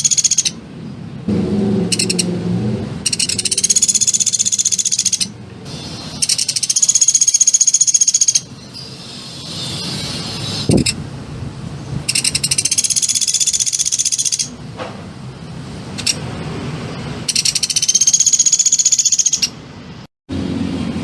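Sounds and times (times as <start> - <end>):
songbird high rapid trills: 0.0 - 0.6, 1.9 - 2.3, 3.0 - 11.0, 12.0 - 14.6, 17.2 - 19.6.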